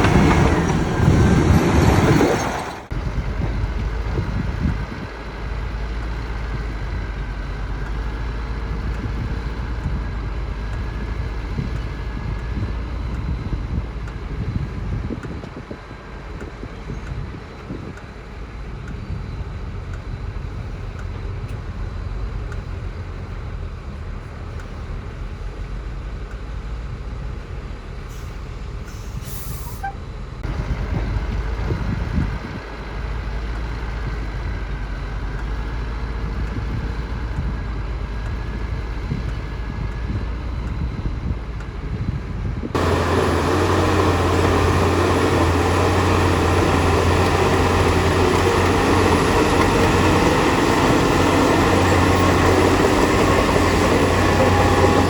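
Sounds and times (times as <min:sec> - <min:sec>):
close engine humming: 0:00.0 - 0:28.9, 0:29.8 - 0:55.0
heavy diesel machinery running: 0:00.0 - 0:55.0
short hiss: 0:28.2 - 0:29.9.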